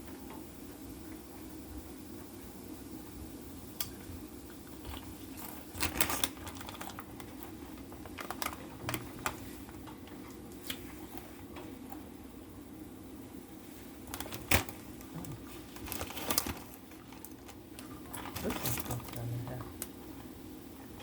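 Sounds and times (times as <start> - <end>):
wrapping crinkling: 4.8 - 11.3, 13.7 - 20.0.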